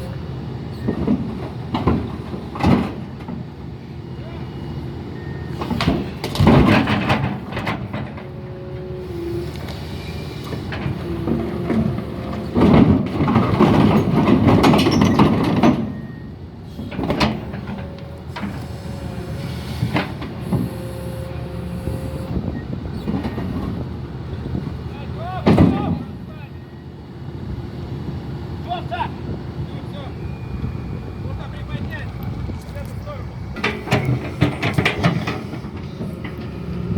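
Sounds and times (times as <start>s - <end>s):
diesel machinery running: 0.0s - 36.9s
metal clanking and scraping: 5.6s - 8.4s, 10.4s - 16.1s, 31.9s - 36.9s.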